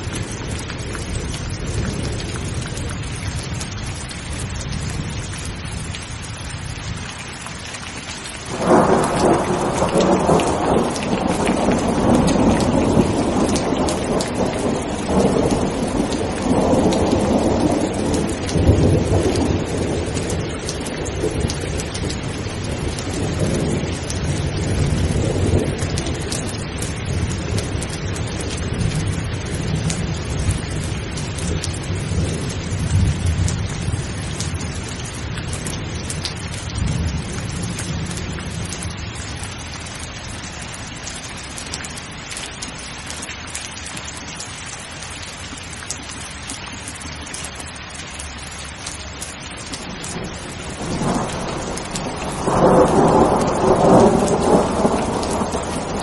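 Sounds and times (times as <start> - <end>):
steady rain: 0.0 - 56.0
thunder peal: 8.5 - 20.0, 50.7 - 56.0
thunder rumbling: 8.5 - 39.0, 49.8 - 56.0.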